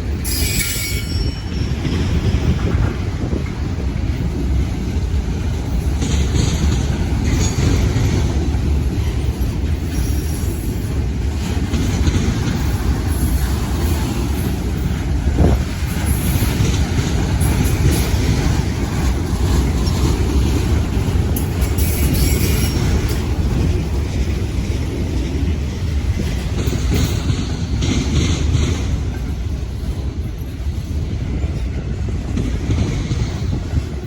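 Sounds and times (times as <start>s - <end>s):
railroad cars rumbling past: 0.0s - 34.0s.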